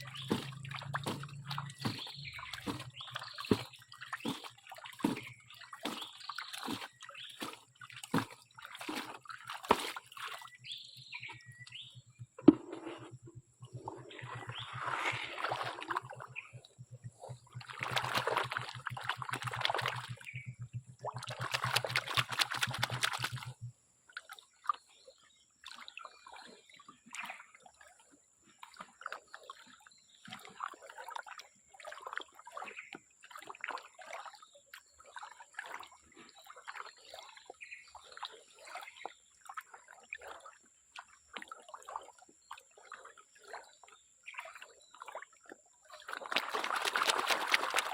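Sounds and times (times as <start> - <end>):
water trickling: 0.0 - 12.3, 13.3 - 24.4, 36.4 - 47.9
water splashing and sloshing: 0.0 - 47.9.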